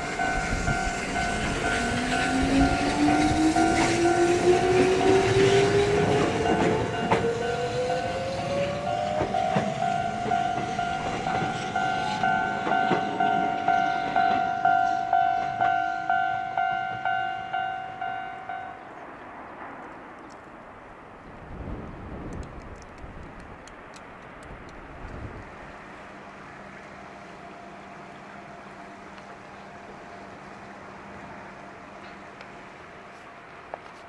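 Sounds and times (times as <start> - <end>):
train wheel clatter: 0.0 - 16.0
electric train motor whine: 0.0 - 17.6
level crossing alarm ringing: 0.0 - 18.9.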